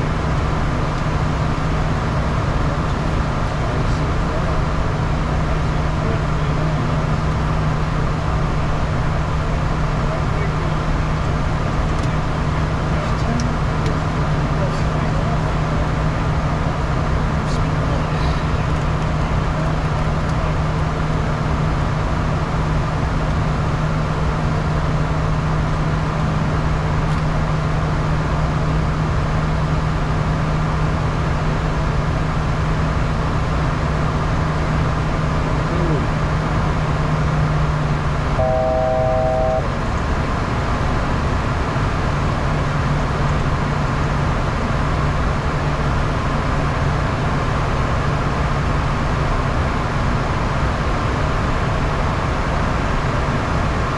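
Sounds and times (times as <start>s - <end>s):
jet cabin airflow and hum: 0.0s - 53.9s
short electronic tone: 38.4s - 39.7s.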